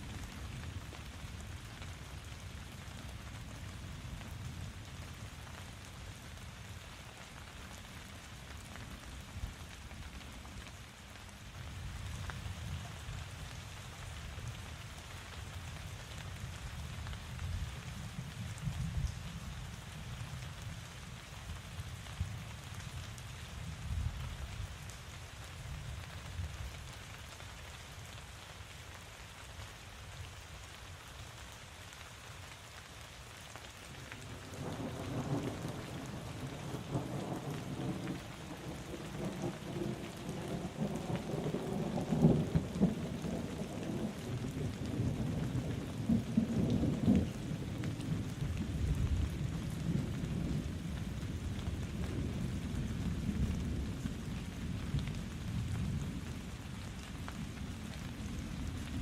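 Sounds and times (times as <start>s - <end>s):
steady rain: 0.0s - 59.0s
thunder rumbling: 34.2s - 54.7s.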